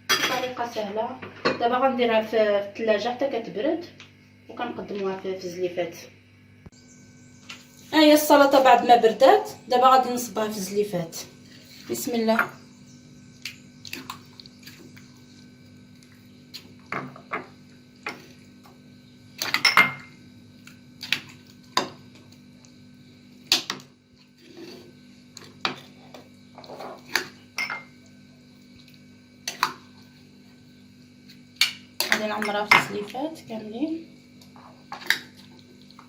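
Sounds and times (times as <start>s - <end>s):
spoon clinking on bowls: 19.4s - 20.2s, 27.6s - 28.0s.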